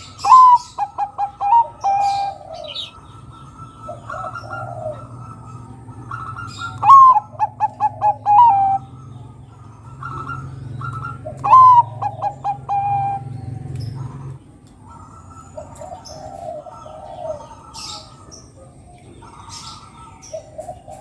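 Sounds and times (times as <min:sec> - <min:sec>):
dove cooing song: 0:00.0 - 0:21.0.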